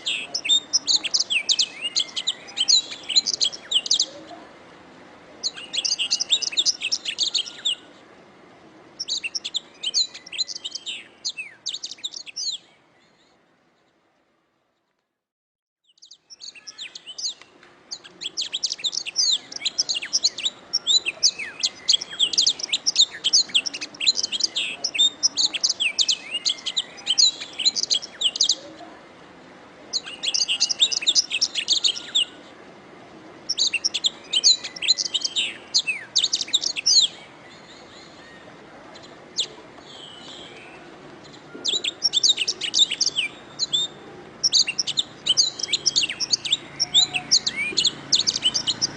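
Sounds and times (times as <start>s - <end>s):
faint steady hiss: 0.0s - 15.2s, 16.0s - 48.9s
canary trilling and warbling: 44.4s - 48.9s.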